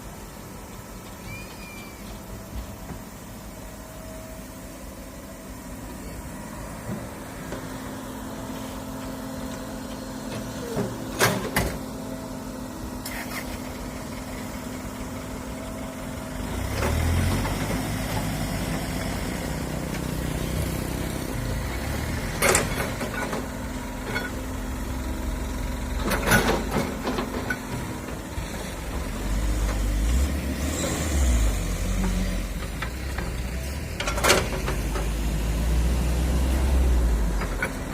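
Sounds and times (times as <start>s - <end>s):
excavator diesel engine: 0.0s - 37.9s
metallic clanks from digging: 22.4s - 24.5s.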